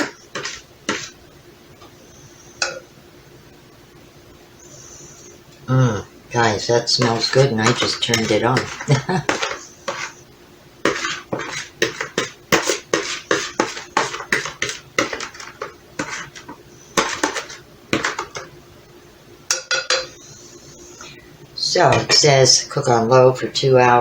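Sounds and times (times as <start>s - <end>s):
dishes and utensils clattering: 6.9s - 10.1s, 10.9s - 18.5s, 19.5s - 20.2s.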